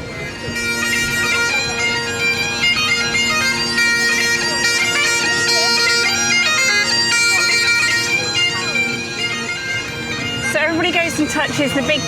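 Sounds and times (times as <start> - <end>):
bagpipes playing a tune: 0.0 - 12.0.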